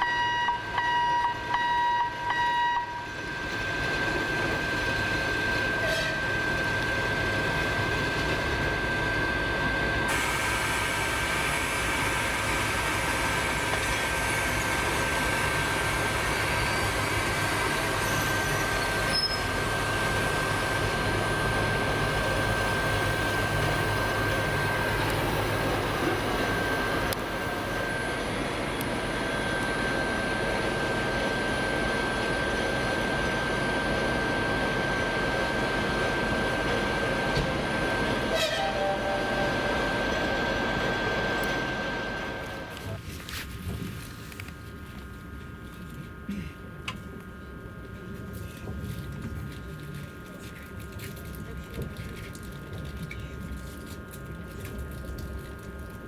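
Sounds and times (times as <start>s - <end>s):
electric train rail noise: 0.0s - 44.6s
high-pitched whine: 21.2s - 42.7s.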